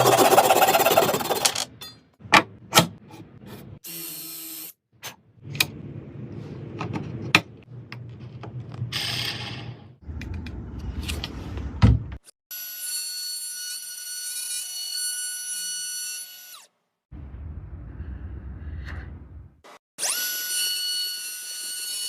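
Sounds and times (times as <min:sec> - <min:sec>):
rasping strokes on wood: 0:00.0 - 0:01.5.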